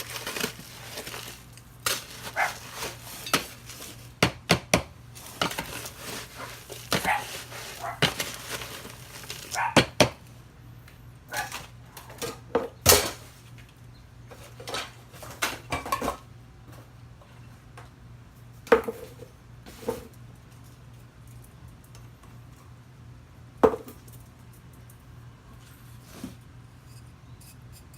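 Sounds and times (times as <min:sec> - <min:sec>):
hard objects clicking and scraping: 0:00.0 - 0:10.1.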